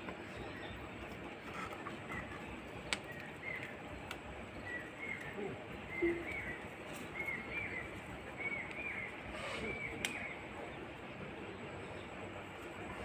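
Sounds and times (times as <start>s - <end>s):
outdoor background noise: 0.0s - 13.0s
faint clicks: 10.0s - 10.2s.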